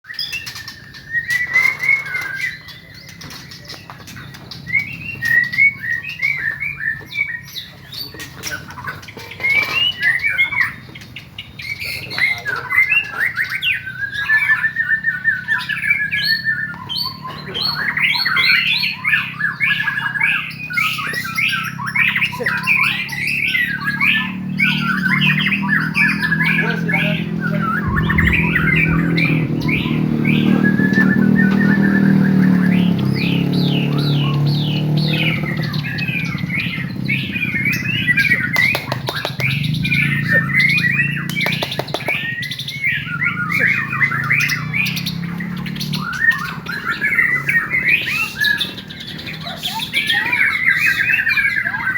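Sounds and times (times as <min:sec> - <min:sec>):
songbirds singing: 0:00.0 - 0:51.9
low rumble: 0:26.7 - 0:33.2.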